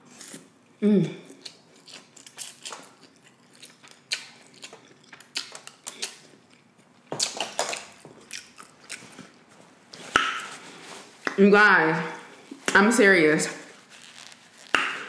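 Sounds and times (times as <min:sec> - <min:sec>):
chewing noodles with wet mouth clicks: 0:01.4 - 0:09.0.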